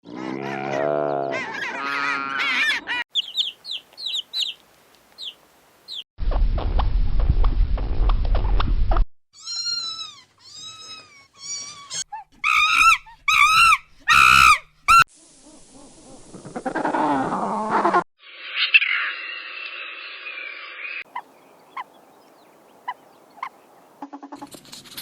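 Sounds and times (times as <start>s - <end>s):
hissy noise: 15.1s - 16.7s.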